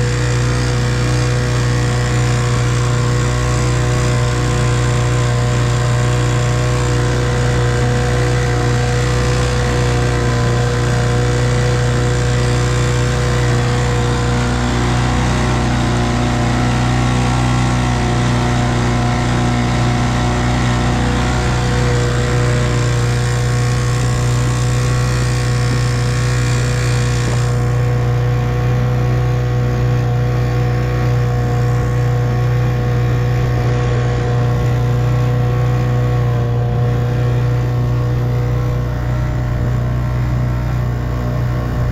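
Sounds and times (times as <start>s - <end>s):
outboard motor running: 0.0s - 41.9s.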